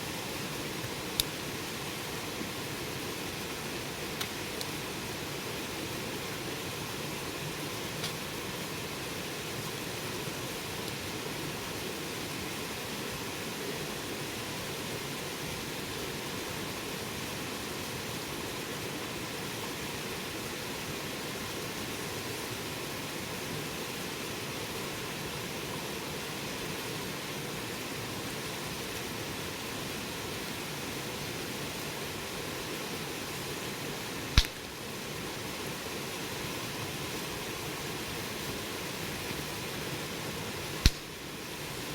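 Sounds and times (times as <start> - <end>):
campfire hissing: 0.0 - 41.9
fire crackle: 34.3 - 35.0, 40.6 - 41.9
sharp fire pop: 34.4 - 34.7, 40.8 - 41.2.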